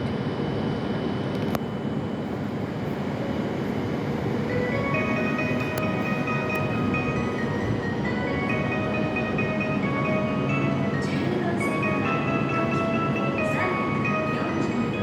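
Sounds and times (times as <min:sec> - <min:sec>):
electronic departure melody: 0:04.4 - 0:15.0.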